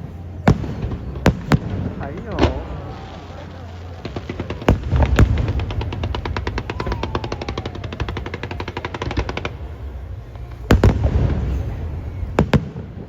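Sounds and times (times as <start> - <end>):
firework bangs: 0.0 - 13.0
fireworks crackling pops: 0.0 - 13.0
falling whistle: 6.5 - 8.7.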